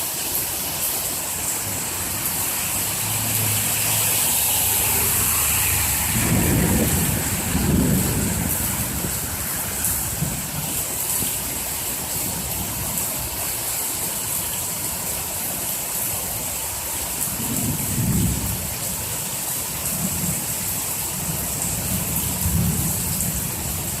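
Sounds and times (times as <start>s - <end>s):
heavy rain hiss: 0.0s - 24.0s
low thunder rumbles: 5.8s - 10.8s, 17.4s - 18.8s.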